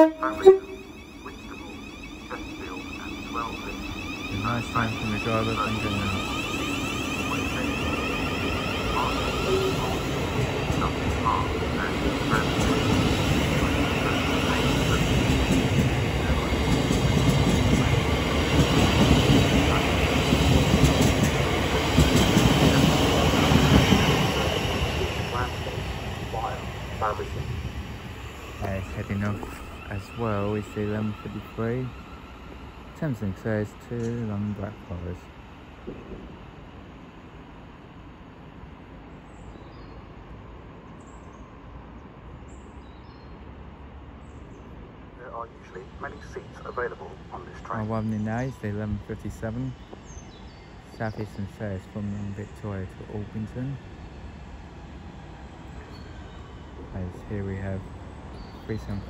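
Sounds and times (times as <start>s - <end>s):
bird chirps: 0.0s - 10.1s, 55.7s - 59.0s
train wheels rumbling on rail: 0.0s - 37.0s, 45.8s - 59.0s.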